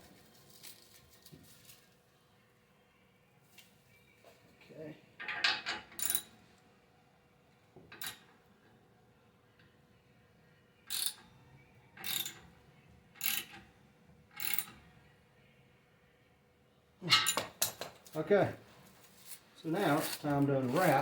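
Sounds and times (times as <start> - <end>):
ratchet clicking: 6.0 - 6.3, 10.9 - 11.2, 12.0 - 12.4, 13.2 - 13.6, 14.4 - 14.7.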